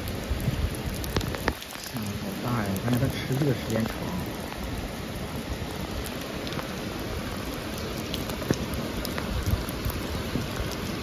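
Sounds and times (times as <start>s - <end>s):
heavy rain hissing: 0.0s - 11.0s
raindrops tapping surfaces: 0.0s - 11.0s.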